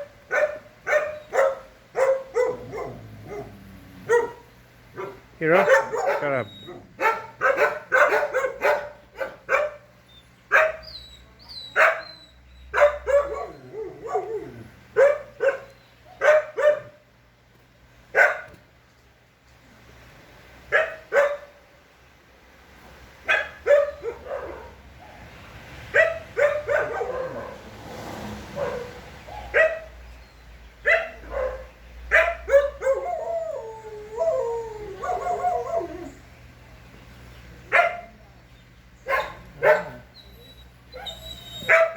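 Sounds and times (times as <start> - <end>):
dog barking: 0.0 - 4.4, 5.0 - 9.9, 10.5 - 10.9, 11.7 - 12.1, 12.7 - 17.0, 18.2 - 18.5, 20.7 - 21.6, 23.2 - 25.3, 25.9 - 27.7, 28.6 - 30.0, 30.8 - 33.1, 35.0 - 35.9, 37.7 - 38.2, 39.0 - 40.1, 41.0 - 41.9.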